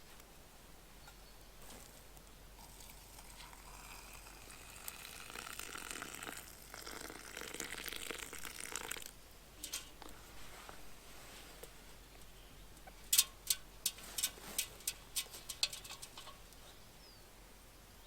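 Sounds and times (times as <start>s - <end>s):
rustling and crinkling: 1.0s - 4.0s, 9.6s - 16.9s.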